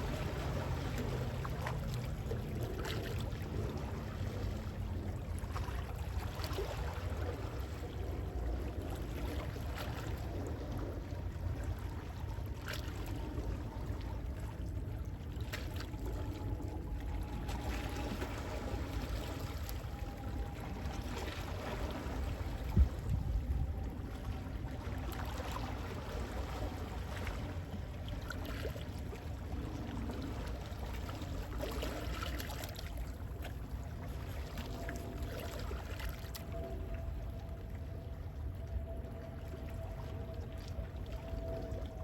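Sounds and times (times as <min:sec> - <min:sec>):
sea waves lapping: 0:00.0 - 0:38.0
small water splashes: 0:15.3 - 0:37.3.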